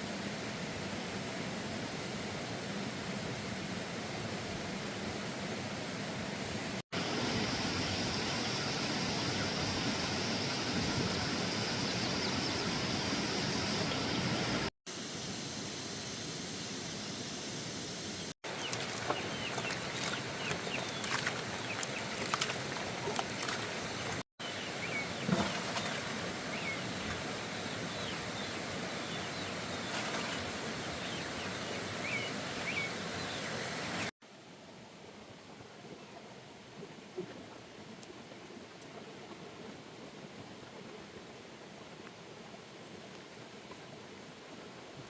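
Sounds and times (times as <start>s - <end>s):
steady hiss: 0.0s - 19.5s.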